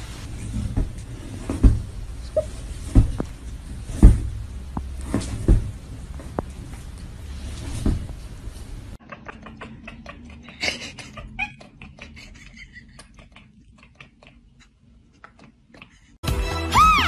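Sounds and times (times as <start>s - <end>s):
cat chattering: 9.0s - 16.0s.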